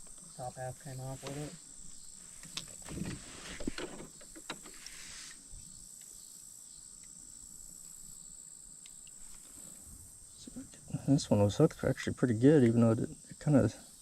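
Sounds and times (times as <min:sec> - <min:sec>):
insect chorus: 0:00.0 - 0:14.0
rustle: 0:00.0 - 0:14.0
faint ticks: 0:05.9 - 0:06.2, 0:07.0 - 0:07.2, 0:08.8 - 0:09.6.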